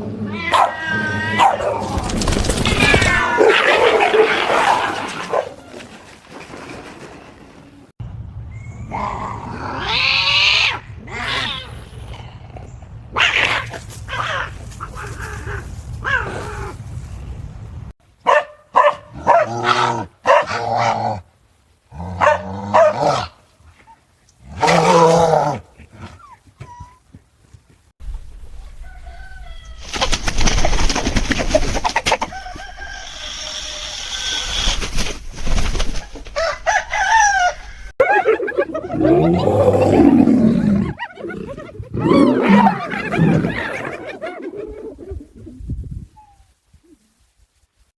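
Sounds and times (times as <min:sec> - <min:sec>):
animal cries and calls: 0:00.0 - 0:01.8, 0:08.8 - 0:12.5, 0:32.5 - 0:35.0
rough noisy animal sound: 0:28.0 - 0:37.9.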